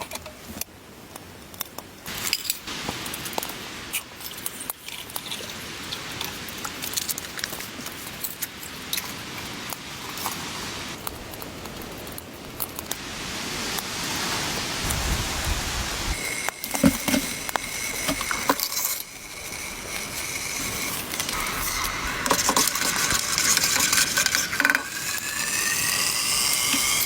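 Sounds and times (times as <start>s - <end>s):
ice flakes ticking on tent walls: 0.1s - 27.0s
snow pattering on tent fabric: 6.6s - 19.9s.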